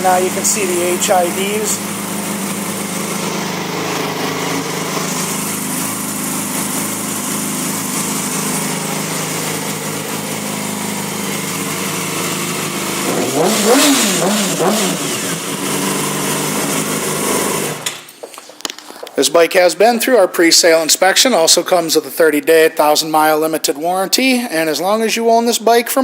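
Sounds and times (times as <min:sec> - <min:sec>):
motorcycle engine idling and revving: 0:00.0 - 0:18.5.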